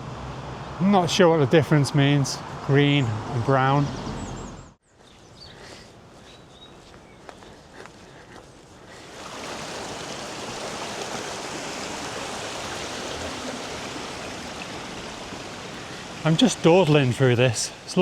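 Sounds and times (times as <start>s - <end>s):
stream water rushing: 8.9s - 18.0s.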